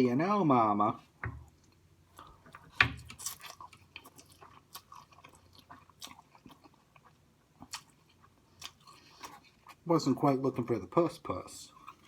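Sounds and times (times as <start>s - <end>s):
wet chewing and mouth clicks: 1.4s - 9.9s, 11.6s - 12.0s.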